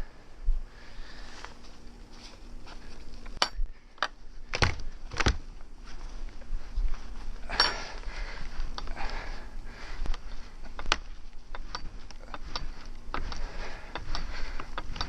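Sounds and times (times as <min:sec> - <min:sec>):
metallic clinks and knocks: 0:03.2 - 0:05.3, 0:07.5 - 0:08.1, 0:10.1 - 0:15.0.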